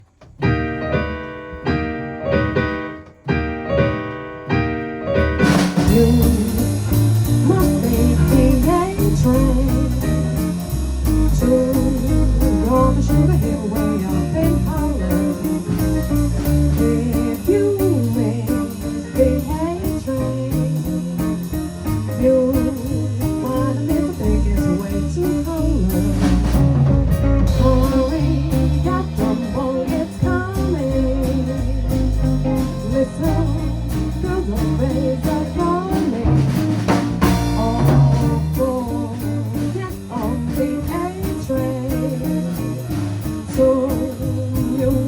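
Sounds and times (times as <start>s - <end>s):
bass: 0.0s - 45.0s
drums: 0.0s - 45.0s.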